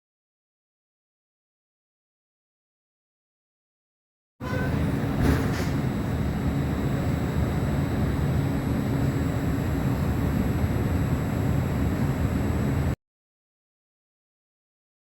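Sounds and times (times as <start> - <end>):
faint high whine: 4.4 - 13.0
train rumbling: 4.4 - 13.0.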